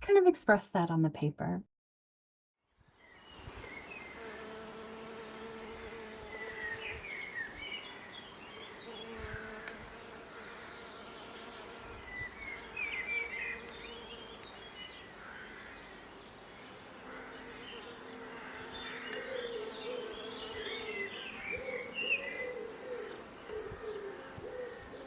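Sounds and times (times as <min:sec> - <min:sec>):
bees buzzing: 0:03.4 - 0:25.0
bird chirps: 0:18.6 - 0:24.0.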